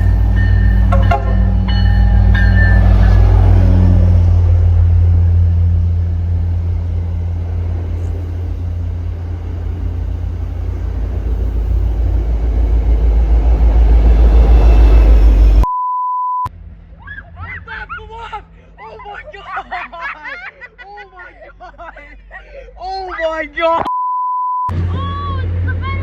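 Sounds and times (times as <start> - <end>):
loud low rumble: 0.0 - 15.7, 16.5 - 18.8
high censor bleep: 15.7 - 16.5, 23.9 - 24.7.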